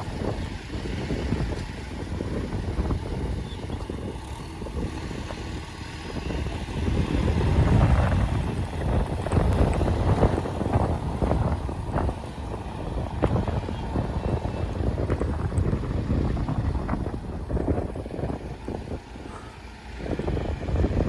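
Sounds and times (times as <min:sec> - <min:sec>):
heavy diesel engine rumbling: 0:00.0 - 0:21.0.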